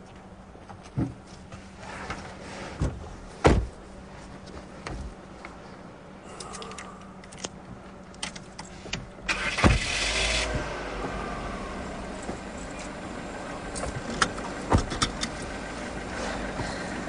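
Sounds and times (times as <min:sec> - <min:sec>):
car engine idling: 0:09.2 - 0:17.0
car starter cranking: 0:09.3 - 0:12.2.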